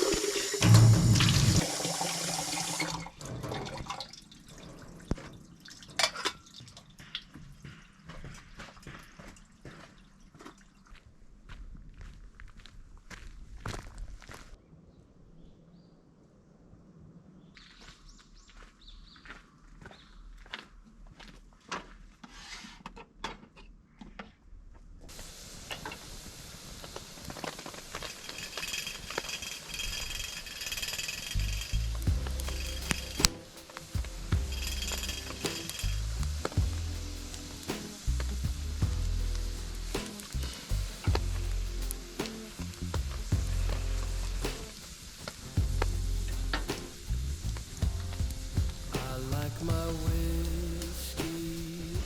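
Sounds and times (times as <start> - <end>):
water dripping: 0.0 - 7.4
hiss with crackles: 25.1 - 52.0.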